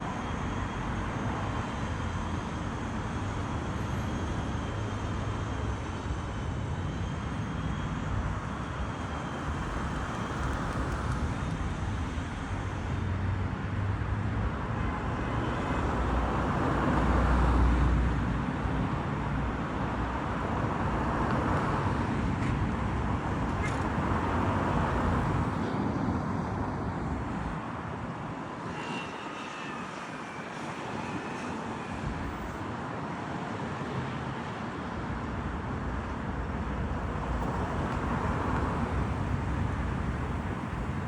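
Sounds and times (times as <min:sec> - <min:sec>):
distant traffic rumble: 0:08.1 - 0:27.6, 0:35.7 - 0:41.0.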